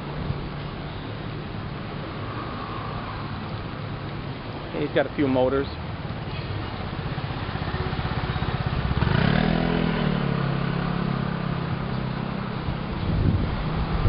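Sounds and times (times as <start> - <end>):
motorbike engine passing: 7.0 - 11.8.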